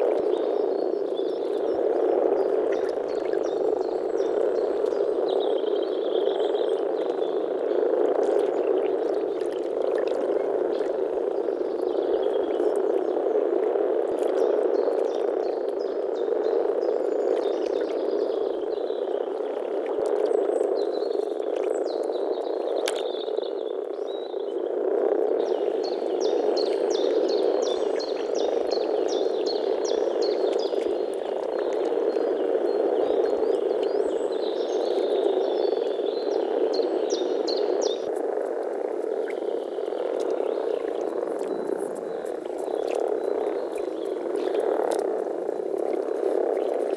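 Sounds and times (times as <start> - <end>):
frogs croaking in chorus: 0.0 - 46.9.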